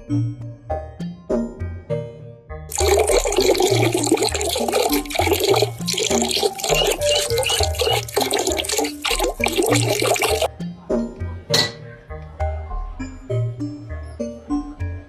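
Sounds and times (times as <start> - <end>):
water splashing from a tap: 2.7 - 10.5.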